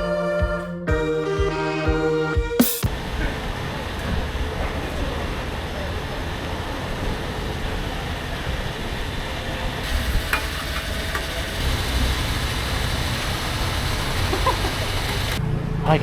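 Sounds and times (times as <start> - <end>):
wind and road noise: 2.9 - 16.0
low motorcycle rumble: 9.8 - 15.8.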